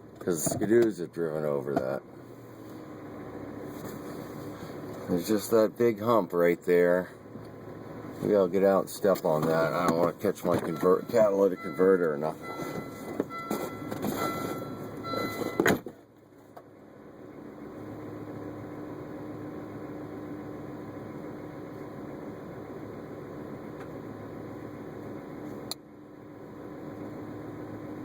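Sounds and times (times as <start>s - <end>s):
idling car and heater fan hum: 0.0s - 28.0s
car warning chime: 10.5s - 15.7s.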